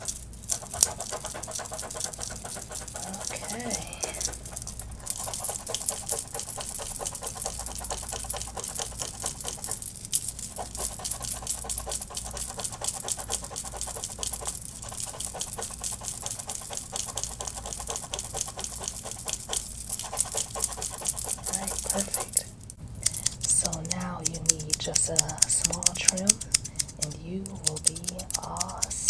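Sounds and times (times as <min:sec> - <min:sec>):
scratching through hair: 0:00.0 - 0:22.5.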